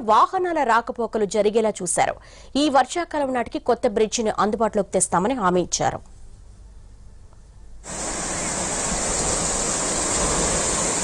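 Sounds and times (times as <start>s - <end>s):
rushing water: 7.8s - 11.0s.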